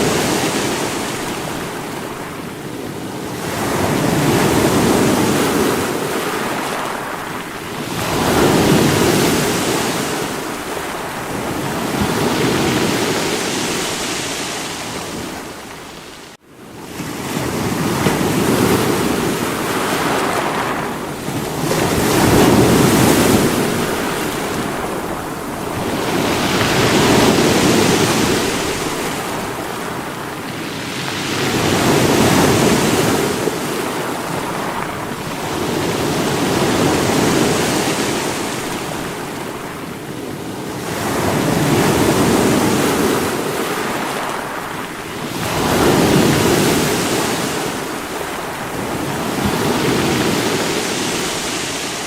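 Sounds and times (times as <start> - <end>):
sea waves breaking on rocks: 17.0 - 52.0.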